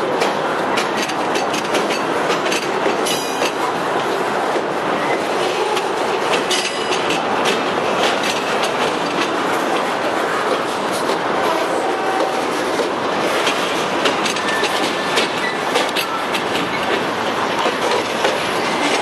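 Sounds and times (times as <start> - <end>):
wheels clicking over rail joints: 0.0 - 3.7, 5.6 - 11.2, 12.0 - 19.0.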